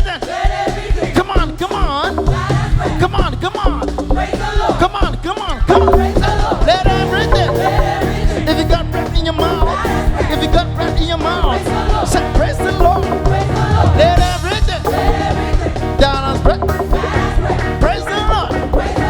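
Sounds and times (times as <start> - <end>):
live band playing gospel music: 0.0 - 19.0
person singing: 1.1 - 19.0.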